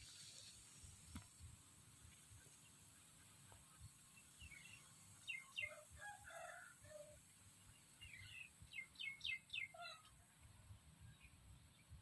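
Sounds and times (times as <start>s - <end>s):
lower bird calls: 2.4s - 10.3s
faint high bird chirps: 3.7s - 12.0s.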